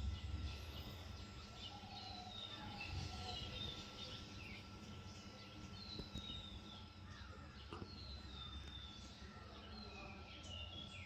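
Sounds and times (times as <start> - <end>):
low background rumble: 0.0 - 1.8
bird chirps: 0.0 - 11.0
faint steady hum: 0.0 - 11.0.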